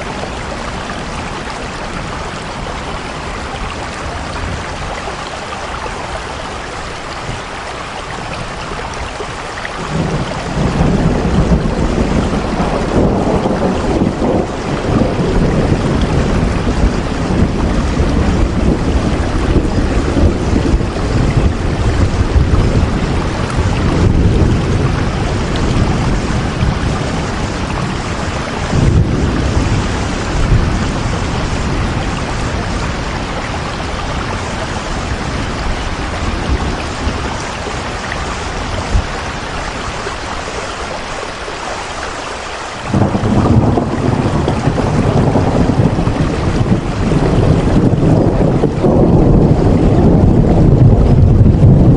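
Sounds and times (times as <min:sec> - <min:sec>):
heavy rain falling: 0:00.0 - 0:51.9
deep rumble: 0:42.9 - 0:51.9.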